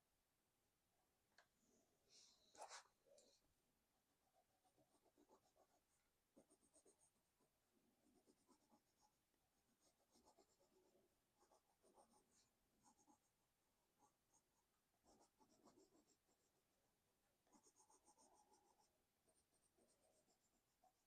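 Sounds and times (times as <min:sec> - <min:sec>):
pencil scratching on paper: 0:02.6 - 0:02.9, 0:04.7 - 0:07.2, 0:08.0 - 0:16.6, 0:17.4 - 0:21.0.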